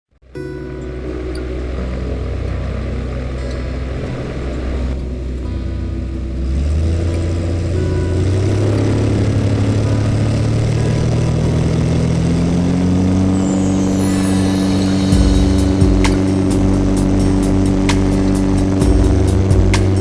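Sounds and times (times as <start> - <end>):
aircraft piston engine and propeller: 6.4 - 20.0.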